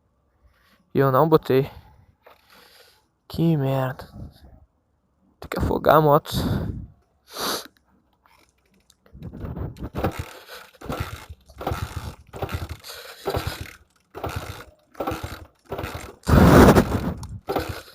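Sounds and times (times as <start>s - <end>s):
motorcycle engine cranking: 8.3s - 17.9s.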